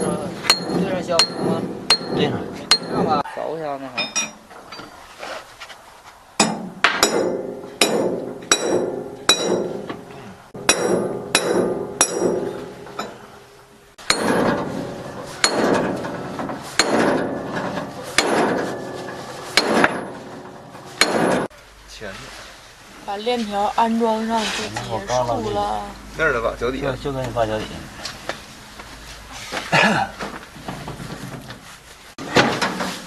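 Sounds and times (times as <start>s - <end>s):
hammer striking steel: 0.0s - 3.2s, 6.4s - 13.4s, 14.0s - 21.5s.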